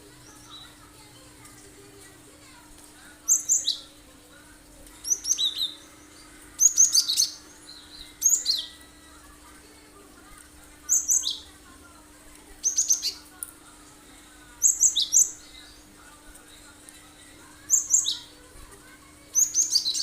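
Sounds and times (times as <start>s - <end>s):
bird chirping song: 3.3s - 4.0s, 5.0s - 9.2s, 10.9s - 11.5s, 12.6s - 13.3s, 14.6s - 15.9s, 17.6s - 18.4s, 19.3s - 20.0s.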